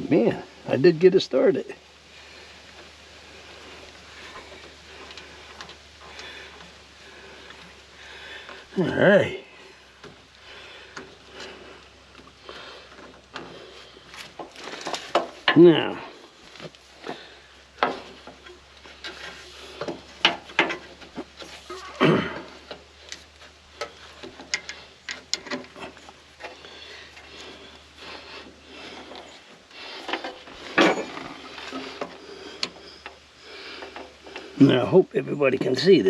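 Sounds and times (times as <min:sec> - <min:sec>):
tools clinking and scraping: 0:29.0 - 0:32.2.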